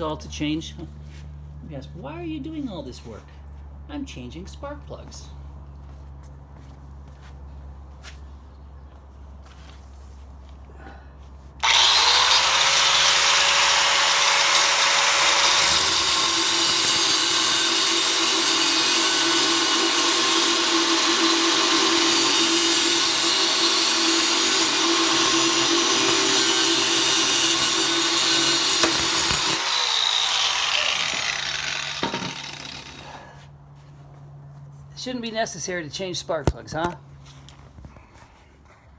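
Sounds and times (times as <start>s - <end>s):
power tool running with hiss: 11.6s - 33.1s.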